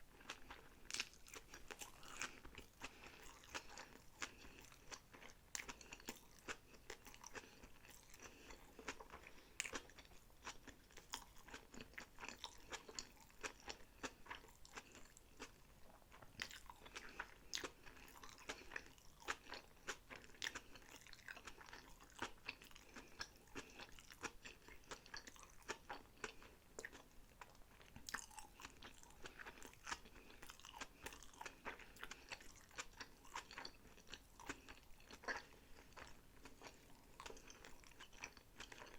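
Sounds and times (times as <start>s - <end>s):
chewing with mouth clicks and crunches: 0.1s - 38.9s.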